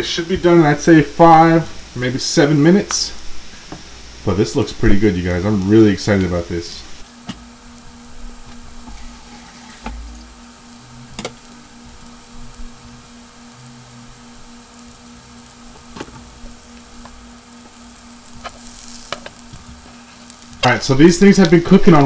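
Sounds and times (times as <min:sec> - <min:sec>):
fish frying in oil: 0:07.0 - 0:22.0.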